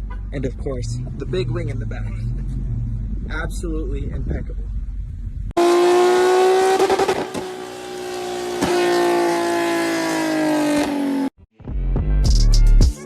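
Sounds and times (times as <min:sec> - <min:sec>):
car engine at high revs: 0:05.6 - 0:11.3.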